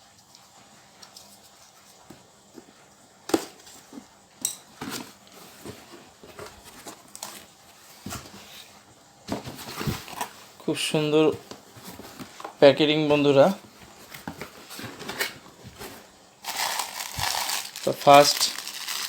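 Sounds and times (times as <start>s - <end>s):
packaging knocks and rustles: 9.2s - 10.4s, 13.2s - 19.0s.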